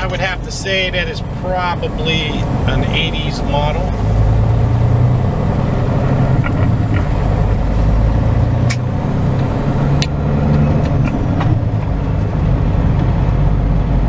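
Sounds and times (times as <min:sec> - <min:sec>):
truck engine running: 0:00.0 - 0:14.0
sharp clicks and rattles: 0:06.2 - 0:07.6.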